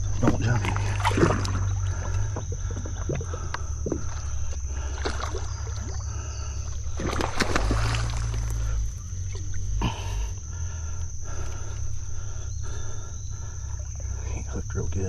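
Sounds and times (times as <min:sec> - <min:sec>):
fish splashing in water: 0:00.1 - 0:09.8.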